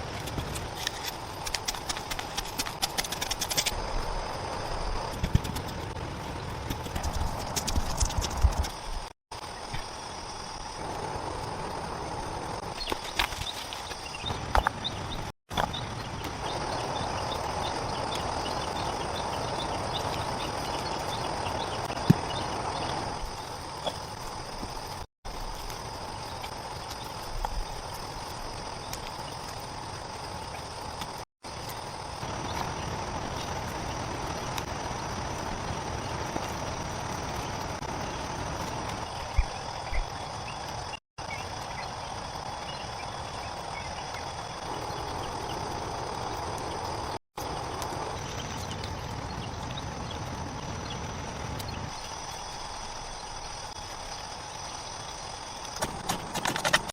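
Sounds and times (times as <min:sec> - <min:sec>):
faint high insect chirps: 0:03.0 - 0:56.7.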